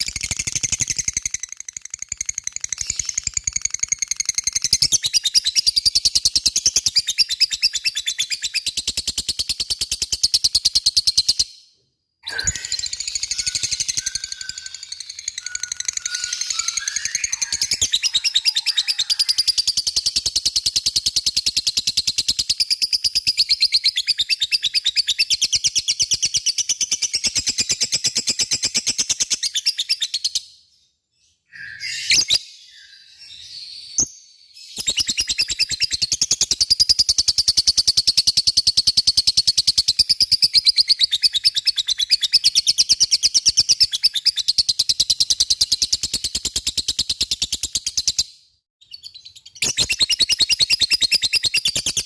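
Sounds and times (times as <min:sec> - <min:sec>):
lovebird chattering: 0:12.3 - 0:19.5.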